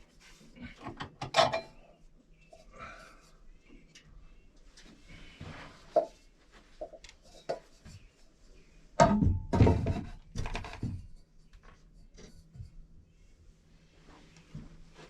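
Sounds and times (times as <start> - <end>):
hard objects knocking and clattering: 9.0 - 11.2.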